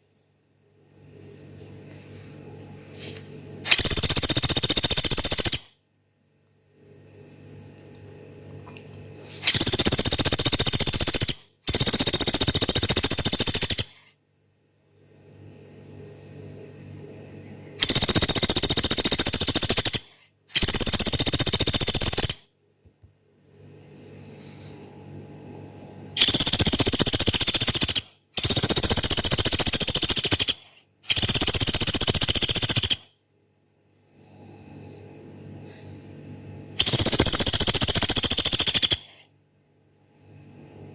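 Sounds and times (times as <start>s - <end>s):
woodpecker rattling calls: 3.7s - 5.7s, 9.4s - 14.0s, 17.8s - 22.4s, 26.2s - 33.1s, 36.8s - 39.2s.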